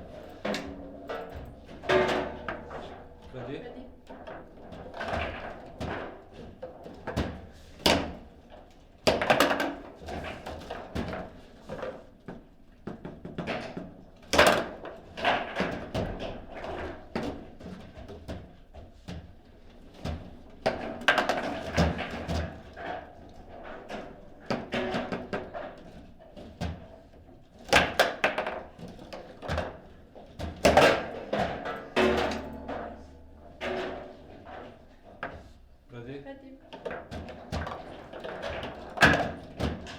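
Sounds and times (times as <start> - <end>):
table football clacks and knocks: 9.1 - 26.9.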